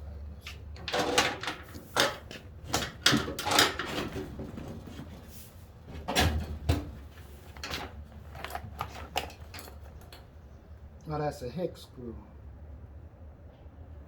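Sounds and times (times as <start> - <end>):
knocks and clatters of seat parts: 0.5 - 10.3.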